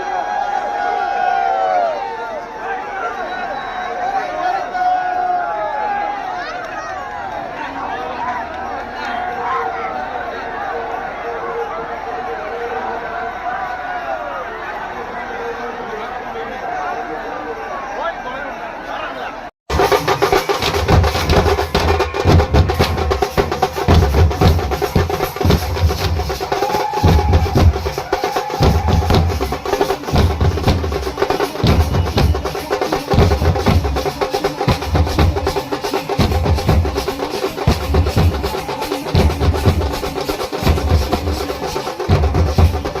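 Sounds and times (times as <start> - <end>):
rapid drumming: 19.7 - 43.0.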